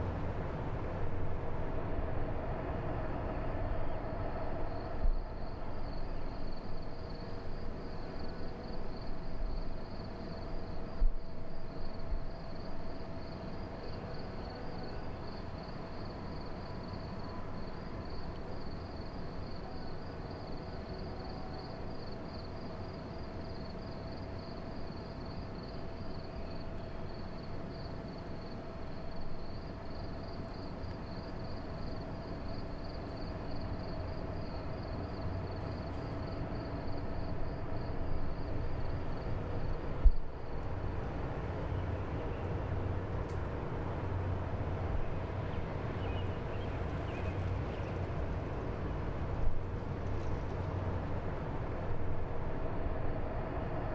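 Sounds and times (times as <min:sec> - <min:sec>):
insects chirping: 0:04.6 - 0:43.0.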